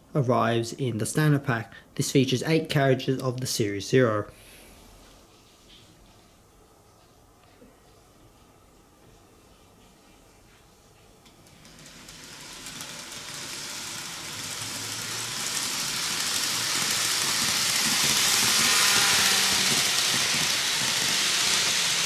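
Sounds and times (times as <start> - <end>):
model train running on track: 11.3 - 22.0.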